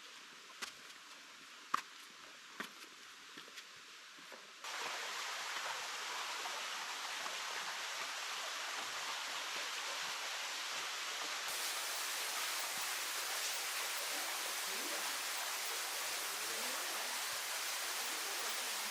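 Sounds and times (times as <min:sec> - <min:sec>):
waterfall rushing: 0:04.7 - 0:18.9.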